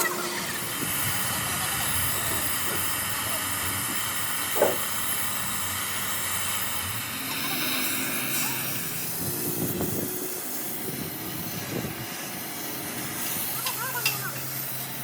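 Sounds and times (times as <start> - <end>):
faint voices: 0.0 - 4.0, 7.0 - 9.5, 13.2 - 15.0
steady hiss: 0.0 - 15.0.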